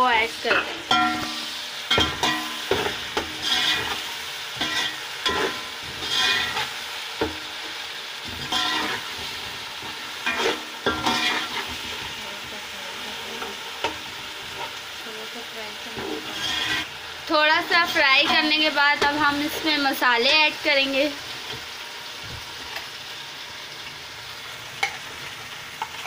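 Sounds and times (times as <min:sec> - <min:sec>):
masala sizzling in oil: 0:00.0 - 0:26.0
spoon scraping a pot: 0:00.5 - 0:06.8, 0:08.2 - 0:12.2, 0:16.0 - 0:16.9.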